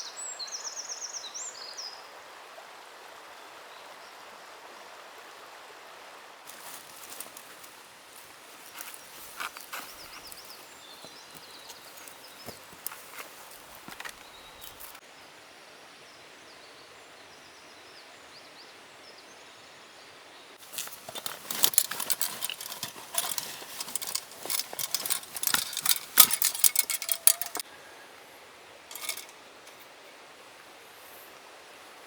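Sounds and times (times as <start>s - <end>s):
faint steady hiss: 0.0s - 32.0s
dense clicking and rustling: 6.5s - 15.0s, 20.6s - 27.6s, 28.9s - 29.8s.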